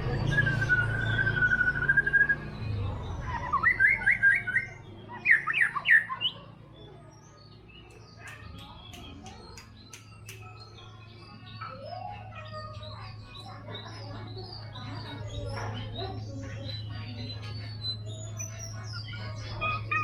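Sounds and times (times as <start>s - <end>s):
bird singing: 0.0s - 20.0s
sharp bird ticks: 7.8s - 10.8s.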